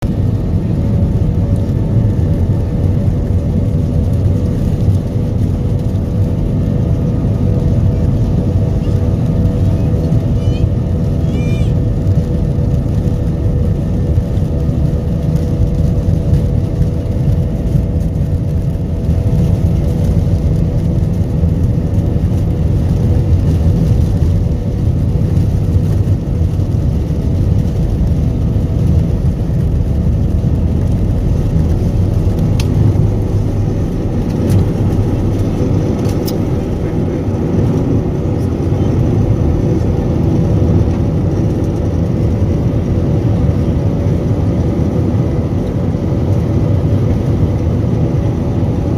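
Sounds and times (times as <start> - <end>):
jet engines rumbling: 0.0 - 48.9.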